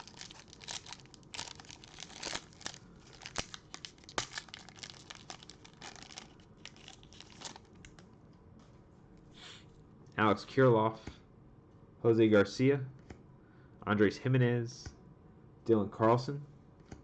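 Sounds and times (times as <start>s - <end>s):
wrapper crinkling and tearing: 0.0s - 8.0s.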